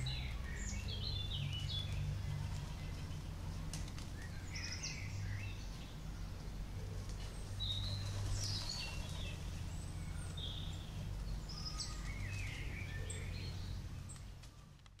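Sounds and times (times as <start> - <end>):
wild birds chirping: 0.0 - 14.9
low background rumble: 0.0 - 15.0.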